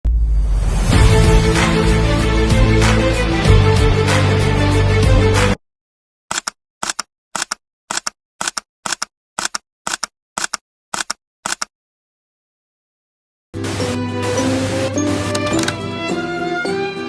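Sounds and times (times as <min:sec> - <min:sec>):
music: 0:00.1 - 0:05.6, 0:13.6 - 0:17.0
camera shutter clicks: 0:06.3 - 0:11.7, 0:15.3 - 0:15.8.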